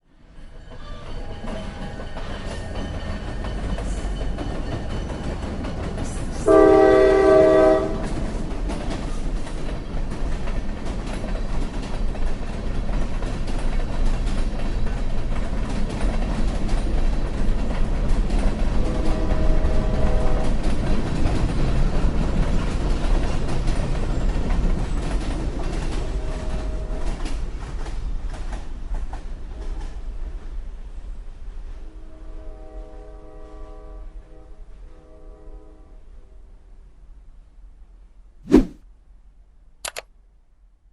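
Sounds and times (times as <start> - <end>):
rumble of moving train: 0.1 - 38.8
train horn: 6.4 - 8.3, 18.7 - 20.6, 25.9 - 27.3, 31.8 - 36.4.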